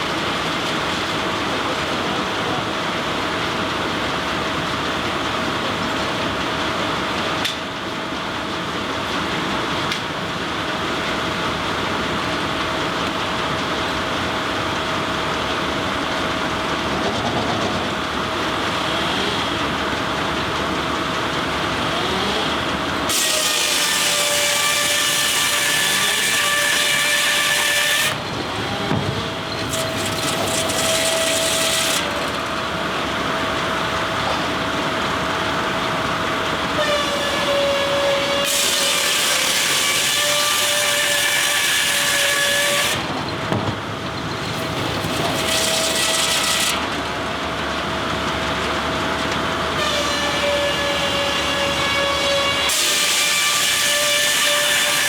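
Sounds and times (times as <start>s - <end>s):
saw whining cutting log: 0.0s - 4.0s, 16.9s - 55.0s.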